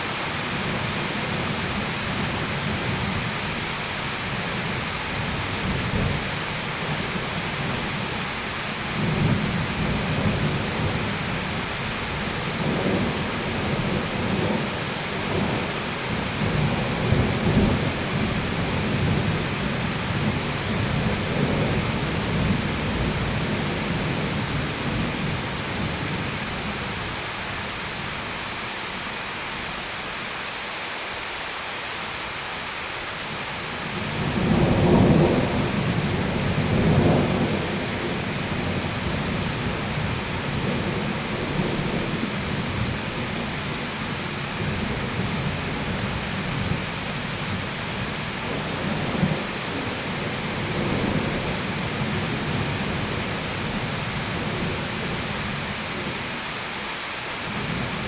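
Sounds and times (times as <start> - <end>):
heavy rain: 0.0 - 58.0
rolling thunder: 33.9 - 43.8.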